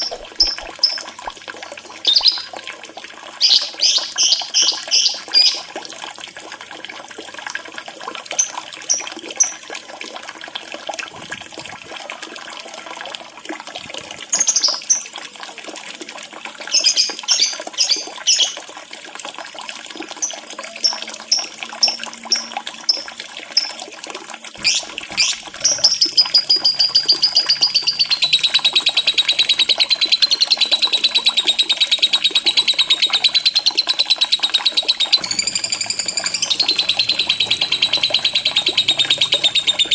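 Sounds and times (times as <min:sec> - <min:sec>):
lovebird chirping and trilling: 0:00.0 - 0:01.0, 0:02.1 - 0:02.5, 0:03.4 - 0:05.6, 0:24.6 - 0:39.9
running water: 0:00.0 - 0:39.9.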